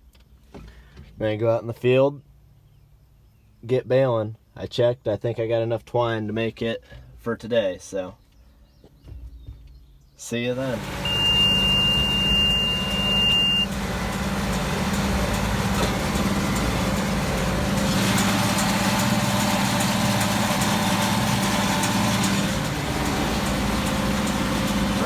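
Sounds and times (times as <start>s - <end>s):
tractor diesel engine running: 10.5s - 25.0s
baler rattling and hissing: 10.6s - 25.0s
high beep: 11.0s - 13.7s.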